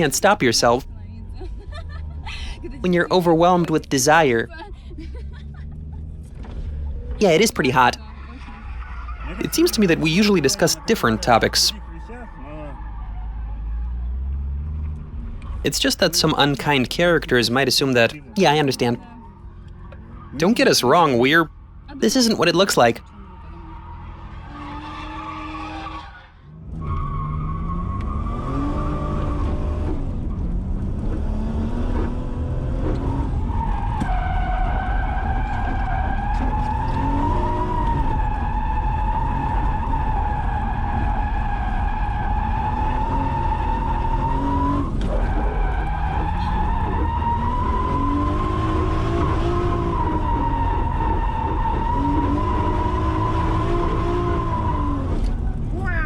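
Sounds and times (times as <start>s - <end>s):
car engine revving: 0.0s - 56.0s
tyres squealing: 5.7s - 13.9s.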